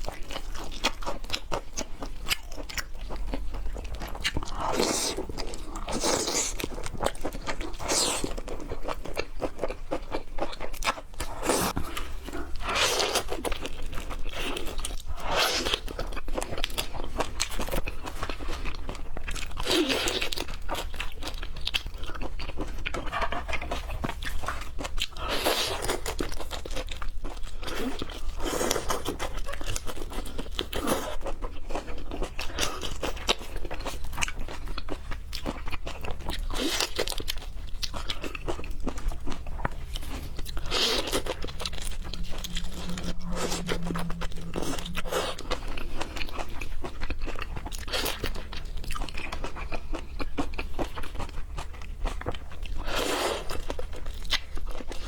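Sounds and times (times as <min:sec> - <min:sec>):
crunchy chewing and biting: 0:00.0 - 0:55.0
mouth sounds: 0:39.8 - 0:46.5.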